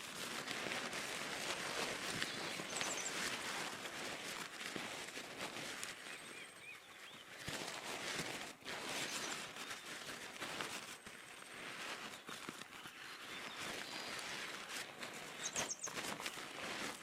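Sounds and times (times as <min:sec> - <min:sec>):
faint bird chirps: 0:02.2 - 0:03.3, 0:06.1 - 0:07.4, 0:15.3 - 0:16.0.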